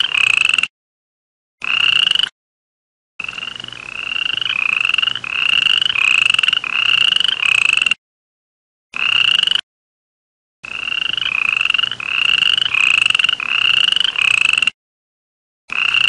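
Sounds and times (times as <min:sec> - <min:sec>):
toad trilling: 0:00.0 - 0:00.7, 0:01.6 - 0:02.3, 0:03.2 - 0:08.0, 0:09.0 - 0:09.6, 0:10.6 - 0:14.8, 0:15.7 - 0:16.0.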